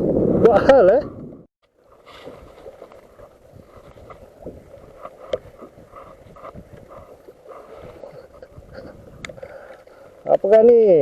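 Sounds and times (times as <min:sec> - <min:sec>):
water lapping against hull: 0:01.8 - 0:10.2.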